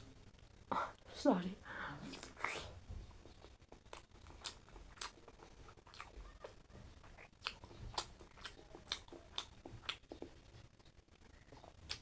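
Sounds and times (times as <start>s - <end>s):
person chewing crunchy food: 3.2s - 10.6s, 11.5s - 12.0s.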